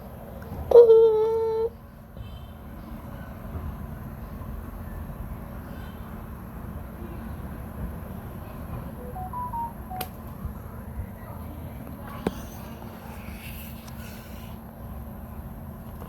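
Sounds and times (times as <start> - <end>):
electronic beeps tune: 9.0 - 10.1.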